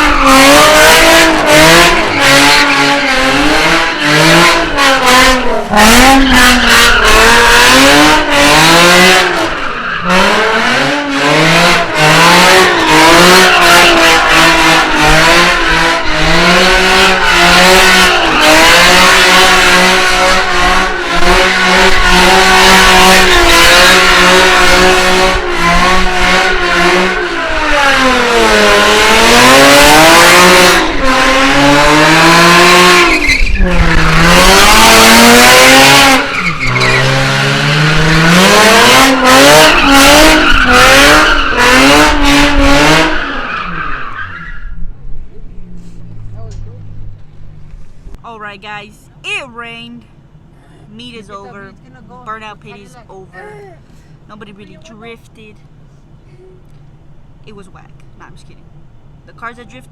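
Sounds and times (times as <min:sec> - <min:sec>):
car engine revving hard: 0:00.0 - 0:44.6
tyres squealing: 0:36.1 - 0:37.3.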